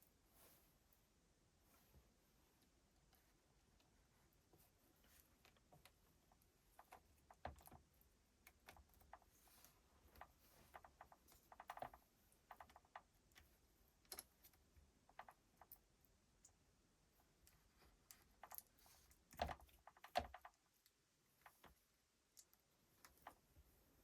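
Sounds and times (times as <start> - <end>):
small hard parts clicking: 18.1 - 20.7.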